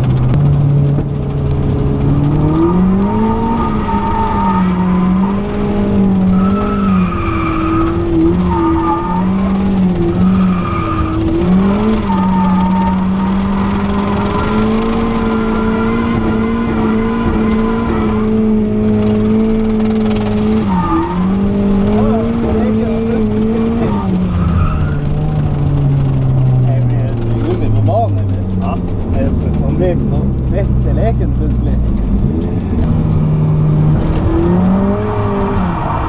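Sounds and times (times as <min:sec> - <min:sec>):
car engine at high revs: 0:00.0 - 0:36.0
tyres squealing: 0:06.1 - 0:18.7.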